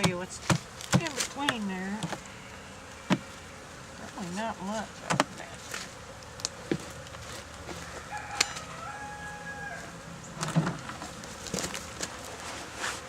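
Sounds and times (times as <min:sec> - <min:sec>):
honeybees humming: 0:00.0 - 0:13.0
rooster crowing: 0:07.7 - 0:10.1.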